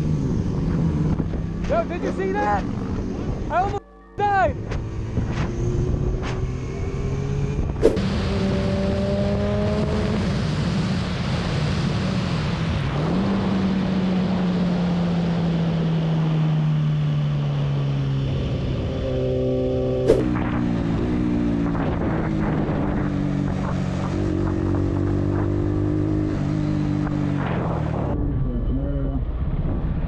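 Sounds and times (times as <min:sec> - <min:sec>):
wind rushing: 0:07.7 - 0:08.6, 0:20.1 - 0:21.0.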